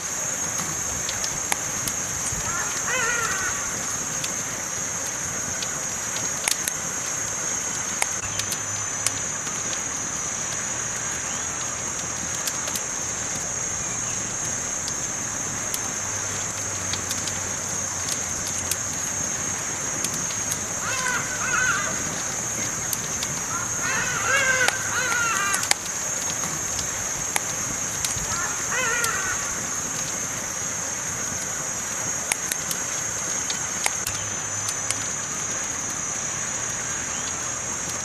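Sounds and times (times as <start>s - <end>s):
campfire crackling: 0.0s - 38.0s
wavering call: 2.4s - 3.8s, 20.8s - 25.8s, 28.2s - 29.7s.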